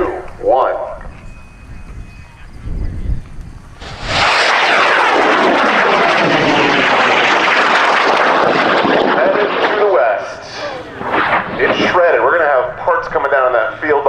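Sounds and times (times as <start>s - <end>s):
rocket motor roaring: 3.8s - 12.6s.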